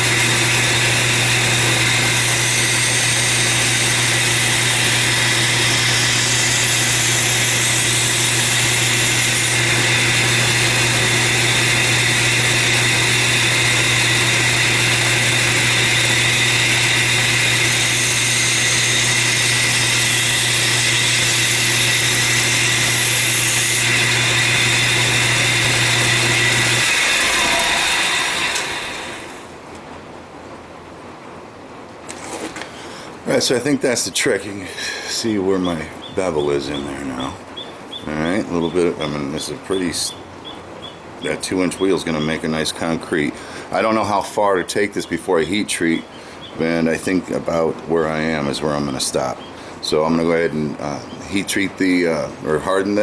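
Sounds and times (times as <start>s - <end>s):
blade grinding hiss: 0.0s - 29.5s
belt grinder motor running: 0.0s - 29.6s.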